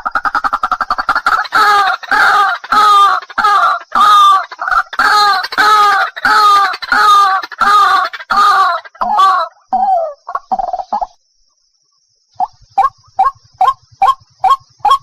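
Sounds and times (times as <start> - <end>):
harsh bird call: 0.4 - 11.2.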